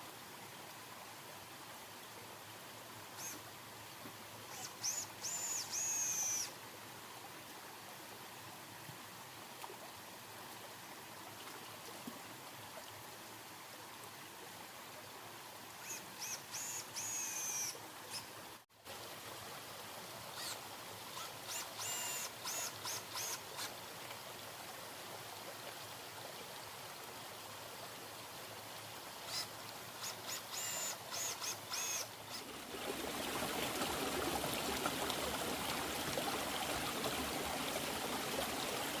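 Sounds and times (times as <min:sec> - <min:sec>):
bird whistling: 0:04.5 - 0:06.5.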